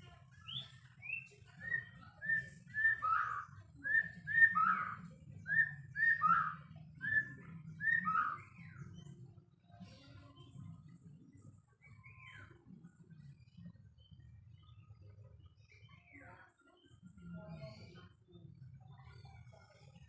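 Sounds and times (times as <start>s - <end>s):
bird singing whistled phrases: 0.4s - 8.6s.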